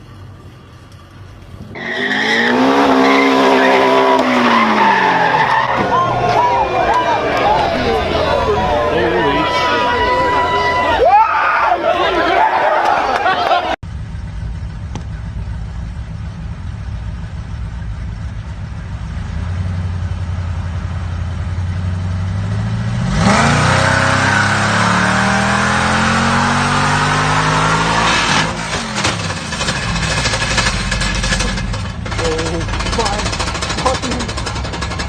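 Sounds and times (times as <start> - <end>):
car engine revving: 1.6 - 11.0, 13.9 - 35.0.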